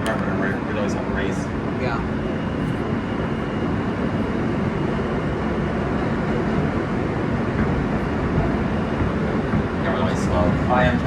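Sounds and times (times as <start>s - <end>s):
faint high whine: 0.0s - 11.0s
subway train rumble on track: 0.0s - 11.0s.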